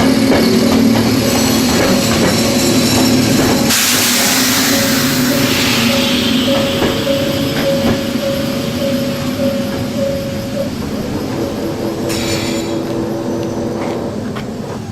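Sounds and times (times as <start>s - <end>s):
electric train running slowly: 0.0s - 14.9s
wheels clicking over rail joints: 0.0s - 14.9s
pulsing tone: 3.7s - 13.7s.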